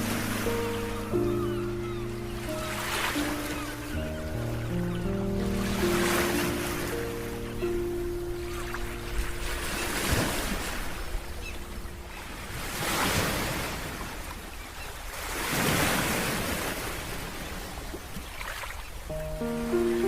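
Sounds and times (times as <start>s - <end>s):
sea waves washing onto shore: 0.0s - 20.0s.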